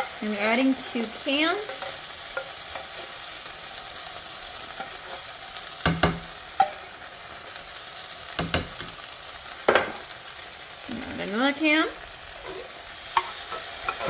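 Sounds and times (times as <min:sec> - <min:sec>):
vegetables sizzling in a pot: 0:00.0 - 0:14.0
sharp knocks on a pot: 0:05.8 - 0:06.3.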